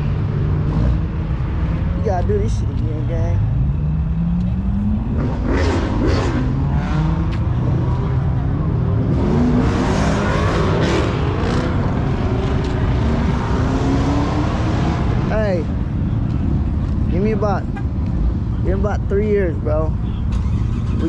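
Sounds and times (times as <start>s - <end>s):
vehicle engine revving hard: 5.1s - 7.3s, 9.0s - 15.1s.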